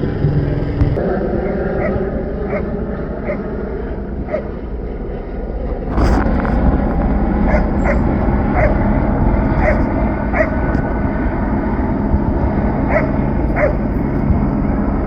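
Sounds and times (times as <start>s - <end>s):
background rumble: 0.0s - 15.0s
dog barking: 1.5s - 3.5s, 4.3s - 4.5s, 7.5s - 8.8s, 9.6s - 10.6s, 12.9s - 13.8s.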